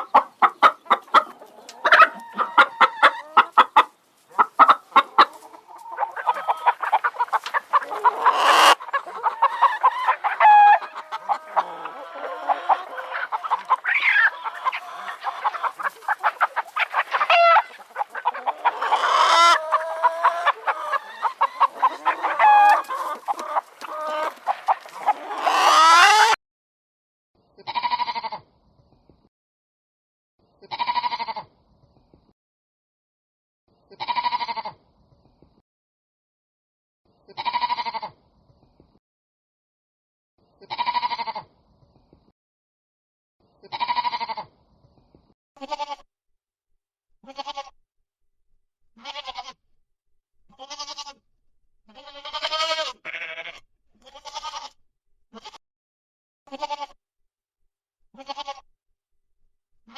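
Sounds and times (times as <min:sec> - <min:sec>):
chickens clucking: 0:00.0 - 0:26.4
sheep bleating: 0:27.6 - 0:28.4, 0:30.6 - 0:31.5, 0:33.9 - 0:34.8, 0:37.4 - 0:38.1, 0:40.7 - 0:41.5, 0:43.6 - 0:44.5, 0:45.6 - 0:46.1, 0:47.2 - 0:47.8, 0:49.0 - 0:49.6, 0:50.5 - 0:51.2, 0:51.9 - 0:54.8, 0:55.4 - 0:55.6, 0:56.5 - 0:57.0, 0:58.2 - 0:58.7.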